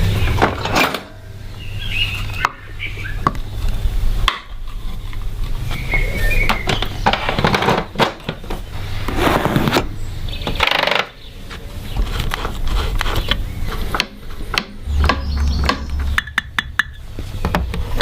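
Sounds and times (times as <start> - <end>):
steady low hum: 12.6 - 18.0.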